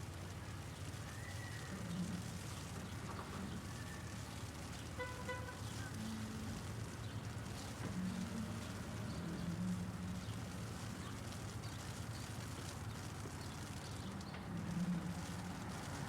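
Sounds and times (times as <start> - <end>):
hail ticking: 0.0 - 16.0
traffic engine hum: 0.0 - 16.0.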